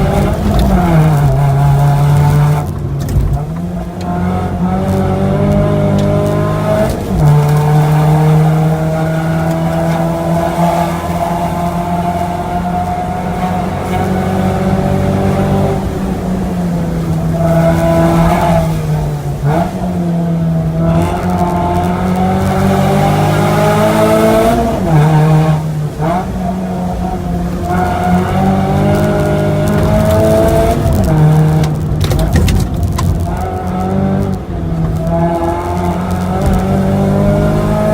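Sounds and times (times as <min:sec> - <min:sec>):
car engine revving through gears: 0:00.0 - 0:37.9.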